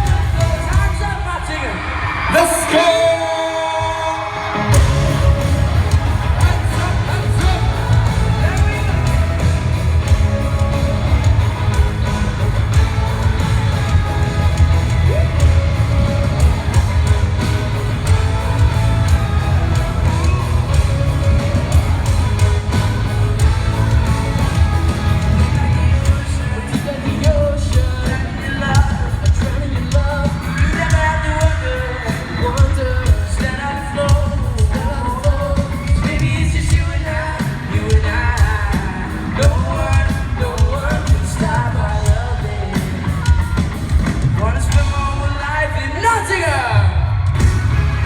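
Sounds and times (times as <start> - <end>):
crowd shouting: 0.0 - 34.0
live pop-rock band with singing: 0.0 - 48.0.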